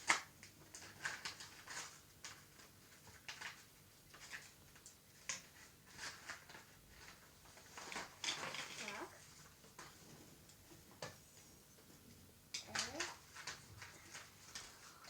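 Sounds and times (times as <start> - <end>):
toy packaging rustling and crinkling: 0.7 - 4.5, 5.2 - 10.0, 12.6 - 15.0.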